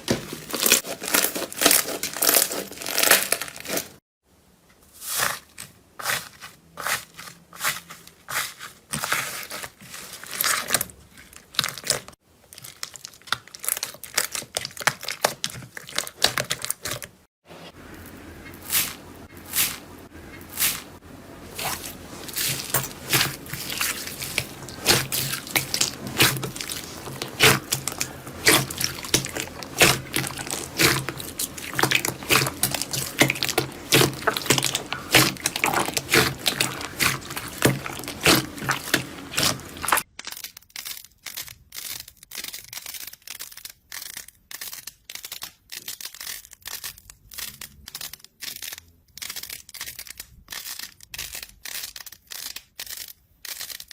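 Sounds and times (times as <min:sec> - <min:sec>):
slime squishing with wet clicks: 0:22.4 - 0:53.7.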